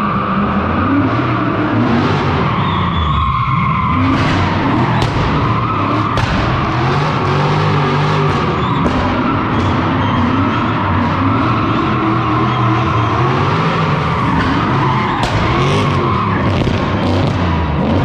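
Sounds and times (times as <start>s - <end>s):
car engine at high revs: 0.0s - 18.0s
tyres skidding: 0.0s - 18.0s
sharp cracks: 4.0s - 9.8s, 14.4s - 17.6s.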